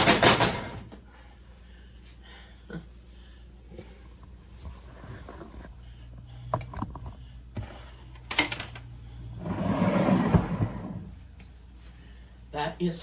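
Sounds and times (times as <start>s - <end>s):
rough sliding noise: 9.3s - 11.1s.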